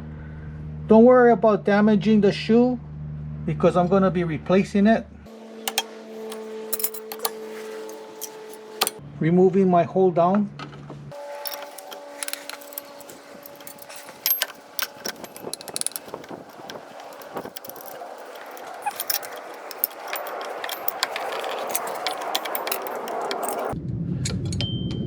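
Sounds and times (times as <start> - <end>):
metal clicking and clinking: 5.7 - 9.0, 11.2 - 23.8.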